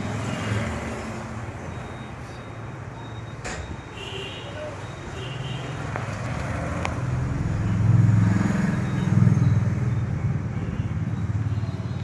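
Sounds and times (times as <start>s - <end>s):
vehicle engine passing by: 6.1s - 9.9s.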